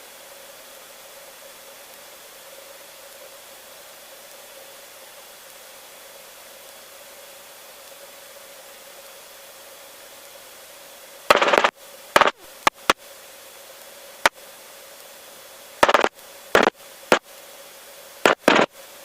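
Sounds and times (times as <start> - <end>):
radio hiss with faint hum: 0.0 - 19.0
static crackles: 6.4 - 19.0
sharp clicks: 11.3 - 13.0, 15.8 - 17.2, 18.3 - 18.7.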